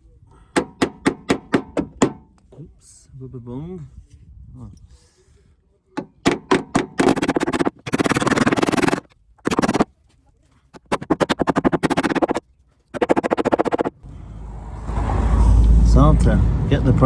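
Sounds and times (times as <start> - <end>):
hammer striking metal panel: 0.6 - 2.3, 6.0 - 9.8.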